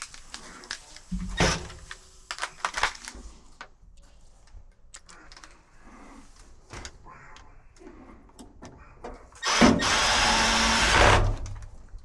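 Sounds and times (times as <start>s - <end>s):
hard parts clicking and knocking: 0.0s - 3.8s, 6.7s - 11.8s.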